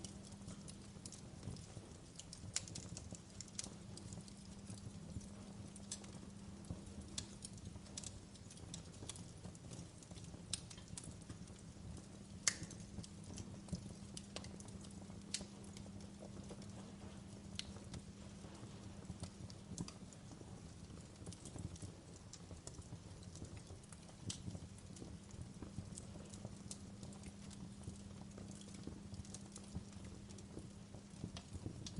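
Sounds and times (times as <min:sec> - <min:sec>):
faint low hum: 0:00.0 - 0:31.9
wood fire crackling: 0:00.0 - 0:31.9.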